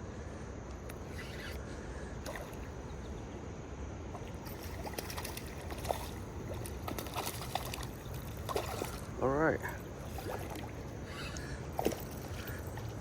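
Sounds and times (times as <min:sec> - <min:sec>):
river water flowing: 0:02.2 - 0:03.3, 0:04.0 - 0:13.0
small splashes and clicks: 0:04.2 - 0:09.1, 0:10.1 - 0:13.0.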